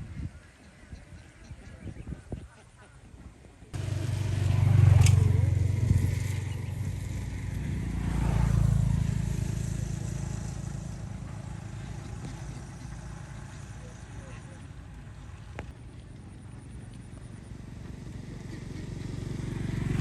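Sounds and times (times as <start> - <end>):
vehicle engine passing: 3.8 - 20.0.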